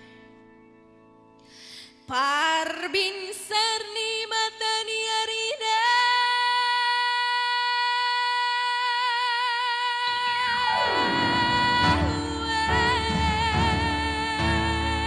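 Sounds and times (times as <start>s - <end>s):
woman singing a long high note: 5.6s - 15.0s
backing music: 10.4s - 15.0s.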